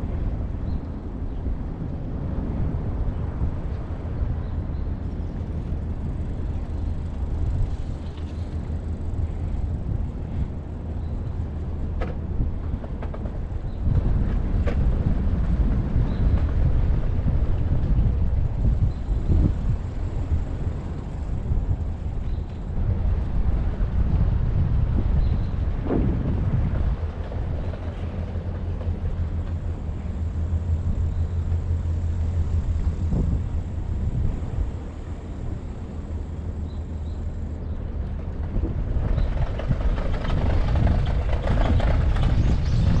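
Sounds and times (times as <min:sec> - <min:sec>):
bicycle road noise: 0:00.0 - 0:43.0
gusty wind rumble: 0:00.0 - 0:43.0.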